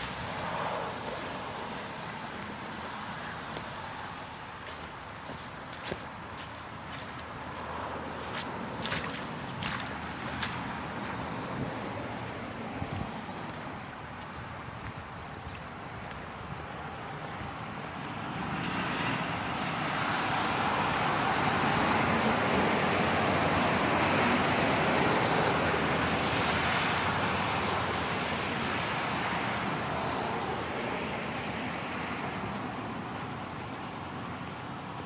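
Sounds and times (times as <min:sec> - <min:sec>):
tyres hissing on wet road: 0:00.0 - 0:14.1, 0:18.2 - 0:35.0
steady rain: 0:20.2 - 0:34.5.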